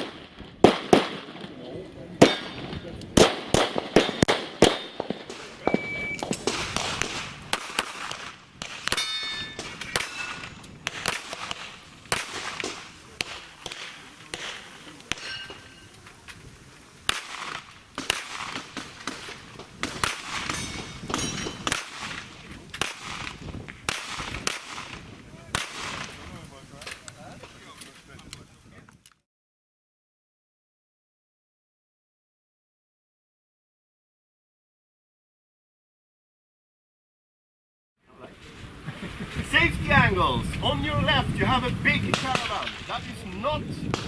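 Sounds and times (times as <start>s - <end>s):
handgun shots: 3.2s - 10.3s
brief ringing tone: 5.6s - 6.4s.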